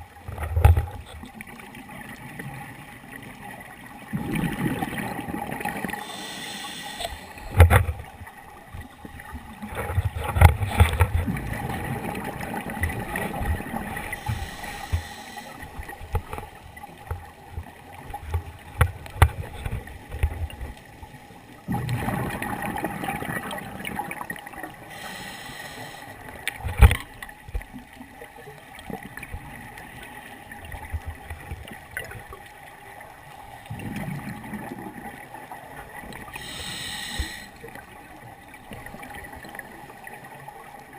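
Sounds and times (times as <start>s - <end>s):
bubbling exhale: 5.7s - 7.6s, 13.9s - 15.8s, 24.9s - 26.2s, 36.4s - 37.6s
regulator hissing inhale: 5.9s - 7.6s, 14.0s - 15.9s, 24.9s - 26.2s, 36.4s - 37.7s.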